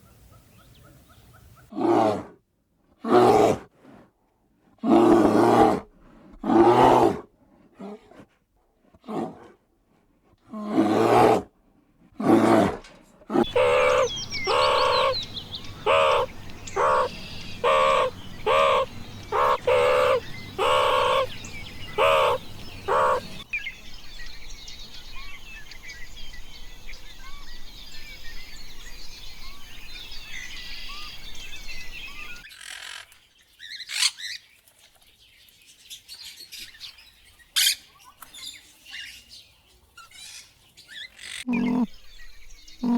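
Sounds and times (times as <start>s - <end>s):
pitched animal calls: 13.3s - 23.4s, 41.2s - 41.9s
small birds twittering: 13.4s - 42.9s.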